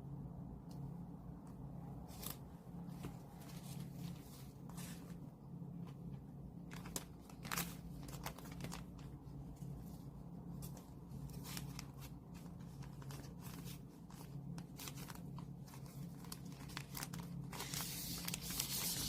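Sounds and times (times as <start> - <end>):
steady low hum: 0.0 - 19.0
packaging crinkling and rustling: 6.6 - 9.8, 10.5 - 19.0.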